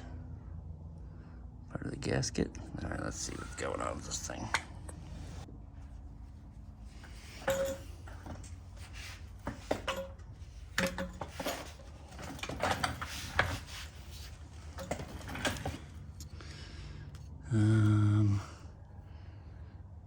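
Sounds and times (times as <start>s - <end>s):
tools scraping and rubbing: 6.5s - 16.4s
metal clinks and knocks: 6.9s - 16.4s.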